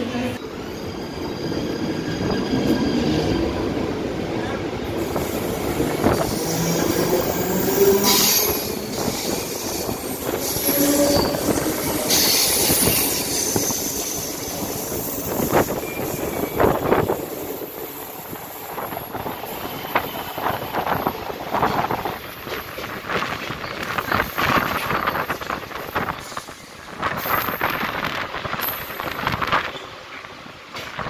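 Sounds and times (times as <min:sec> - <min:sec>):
train wheel-on-rail rumble: 0:00.0 - 0:31.0
high wheel squeal: 0:06.0 - 0:17.4.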